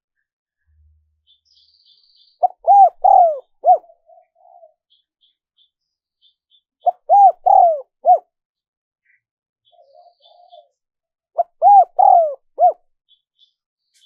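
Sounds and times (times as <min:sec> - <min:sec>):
dove cooing: 0:02.4 - 0:04.8, 0:06.8 - 0:08.3, 0:11.4 - 0:12.8.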